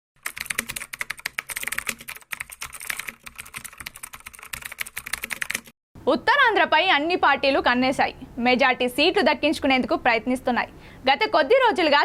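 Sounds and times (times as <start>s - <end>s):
computer keyboard typing: 0.2s - 5.8s.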